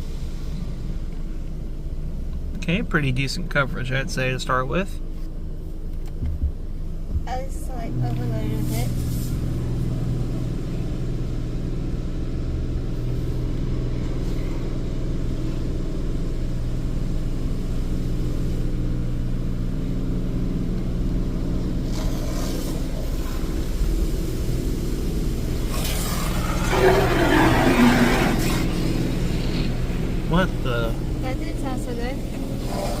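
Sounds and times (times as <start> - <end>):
car wash machine hum: 0.0 - 33.0
water spray hitting car: 21.6 - 33.0.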